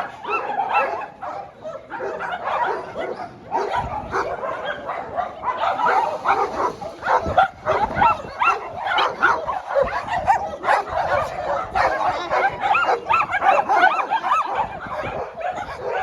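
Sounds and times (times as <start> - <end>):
many dogs barking: 0.0 - 16.0.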